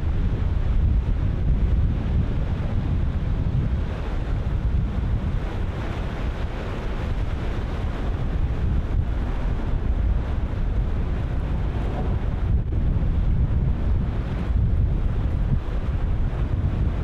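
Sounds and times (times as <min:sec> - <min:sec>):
wind buffeting microphone: 0:00.0 - 0:17.0
ocean surf breaking: 0:05.4 - 0:16.9.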